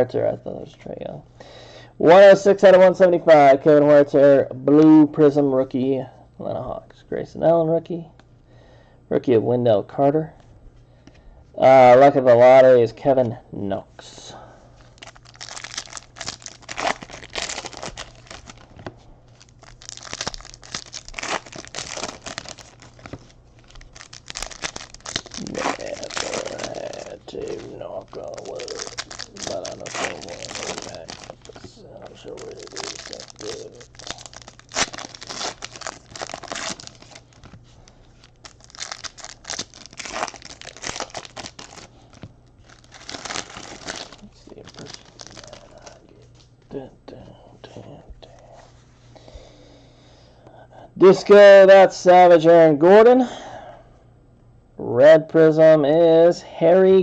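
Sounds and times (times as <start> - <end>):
card pack wrappers crinkling: 14.9 - 46.4.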